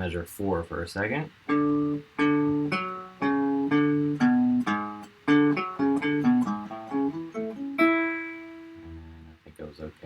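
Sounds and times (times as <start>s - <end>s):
plucked guitar melody: 1.4s - 9.4s.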